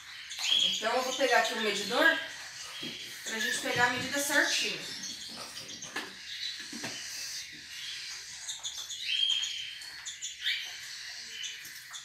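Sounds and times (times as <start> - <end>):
birds chirping and calling: 0.0 - 12.0.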